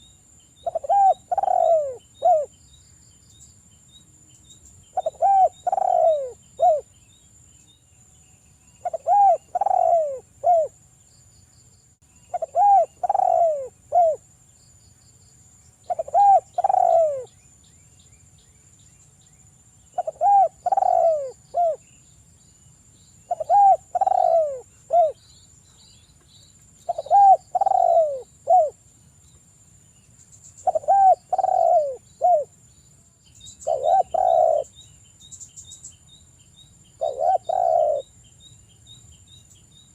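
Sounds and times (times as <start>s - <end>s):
dove cooing: 0.6s - 2.5s, 5.0s - 6.9s, 8.8s - 10.8s, 12.3s - 14.2s, 15.9s - 17.3s, 19.9s - 21.8s, 23.3s - 25.2s, 26.9s - 28.8s, 30.6s - 32.5s, 33.6s - 34.8s, 37.0s - 38.1s.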